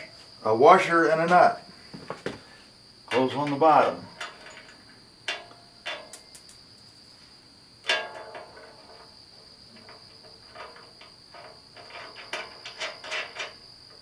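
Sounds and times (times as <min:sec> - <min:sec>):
crickets chirring: 0:00.0 - 0:14.0
steel parts clinking: 0:03.1 - 0:06.6, 0:07.8 - 0:14.0
sharp metallic clank: 0:07.8 - 0:09.2.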